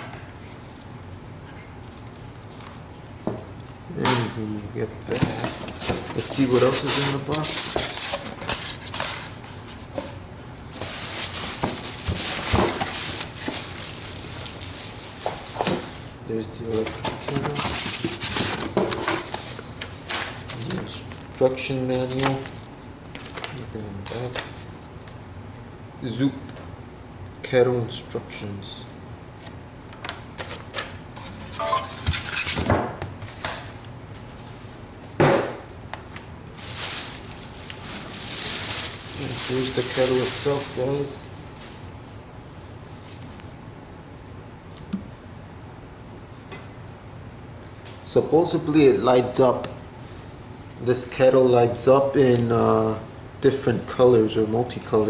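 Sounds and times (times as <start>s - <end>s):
packaging rustling: 5.3s - 9.9s, 10.7s - 21.4s, 22.0s - 23.6s, 36.6s - 41.9s.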